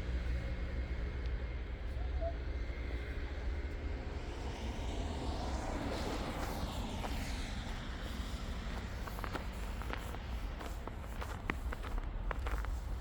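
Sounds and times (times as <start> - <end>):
traffic engine rumble: 0.0 - 13.0.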